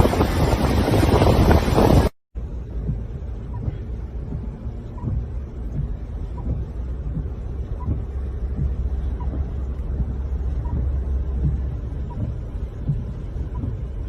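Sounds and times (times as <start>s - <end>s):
storm wind on microphone: 0.0s - 2.2s.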